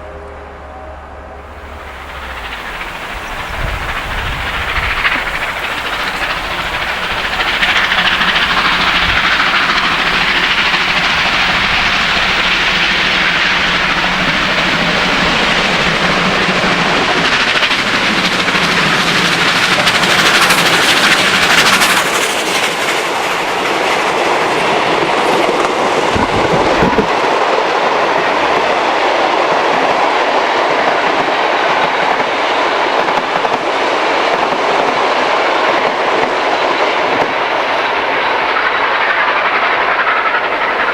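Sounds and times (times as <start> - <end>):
hissing burst: 1.5 - 18.6
train wheels clattering over rail joints: 1.5 - 27.6, 29.4 - 40.9.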